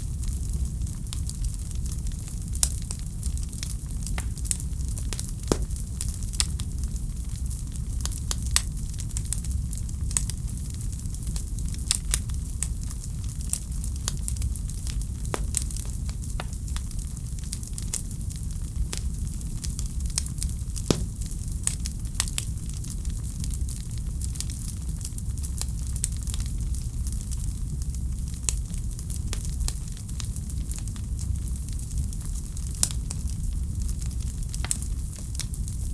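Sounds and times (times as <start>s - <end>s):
low rumble of burning fire: 0.0s - 35.9s
fire crackling: 4.1s - 7.5s, 13.4s - 18.0s, 18.8s - 23.8s.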